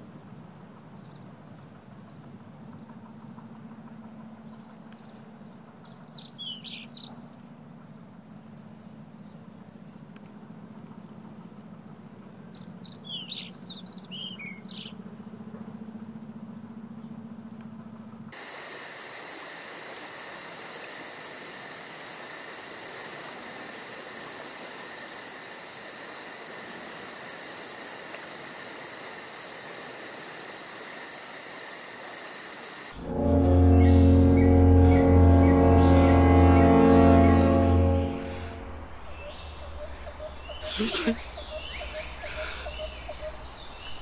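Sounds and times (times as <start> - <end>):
high-pitched pulsing drone: 32.9 - 40.8
low steady hum: 32.9 - 44.0
birds chirping: 33.1 - 44.0.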